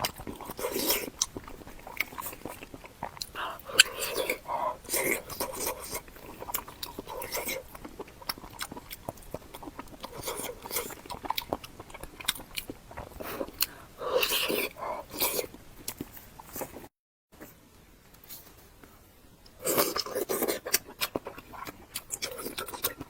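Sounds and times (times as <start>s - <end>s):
wet mouth clicks: 0.0s - 16.8s
close chewing and biting: 0.0s - 16.9s, 19.5s - 23.0s.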